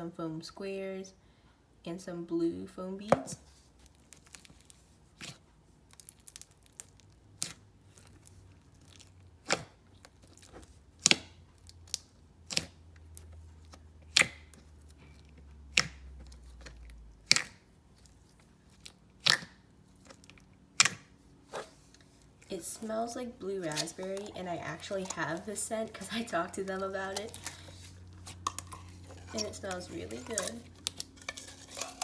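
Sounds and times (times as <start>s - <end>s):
slime being worked by hand: 3.4s - 32.0s
soft crackles: 21.4s - 32.0s.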